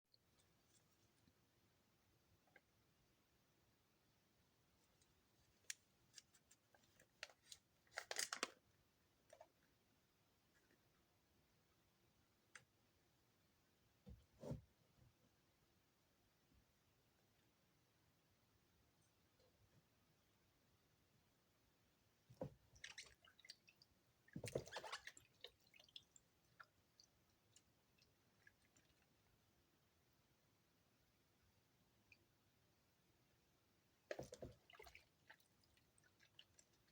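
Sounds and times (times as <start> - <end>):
small drips and pops: 22.3 - 29.3, 34.0 - 36.9
soap squelching in wet hands: 22.8 - 29.1, 34.1 - 36.9.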